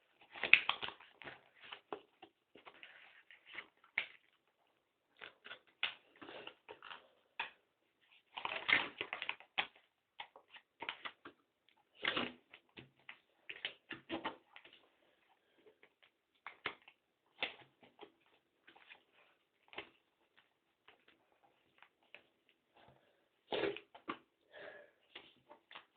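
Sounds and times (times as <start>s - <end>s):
paper rustling and crinkling: 0.0s - 4.4s.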